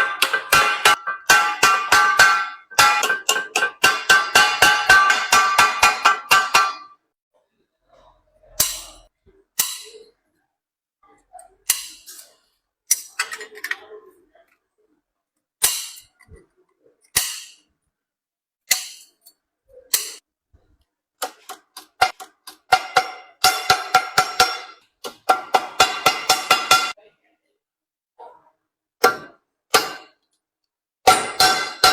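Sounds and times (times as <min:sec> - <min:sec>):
hammer striking sheet metal: 0:00.0 - 0:07.0, 0:08.6 - 0:10.1, 0:11.7 - 0:12.3, 0:15.6 - 0:16.3, 0:17.2 - 0:17.7, 0:18.7 - 0:19.2, 0:19.9 - 0:20.2, 0:21.2 - 0:27.0, 0:29.0 - 0:30.2, 0:31.0 - 0:31.9.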